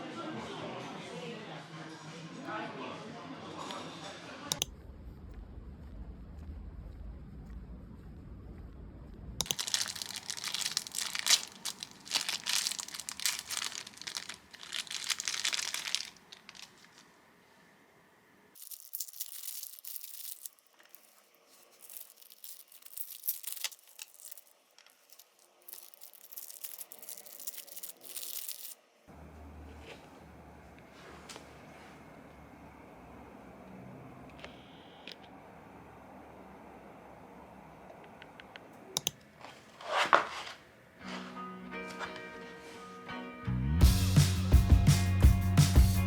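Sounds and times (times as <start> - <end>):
packaging crinkling and tearing: 9.4 - 17.1, 18.6 - 28.8.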